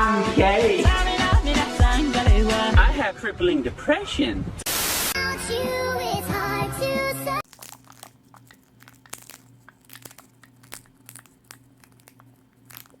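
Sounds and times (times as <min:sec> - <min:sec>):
music: 0:00.0 - 0:03.3, 0:05.2 - 0:07.4
speech: 0:02.8 - 0:04.5
faint crinkling and clicks: 0:07.4 - 0:13.0
low steady hum: 0:07.4 - 0:13.0.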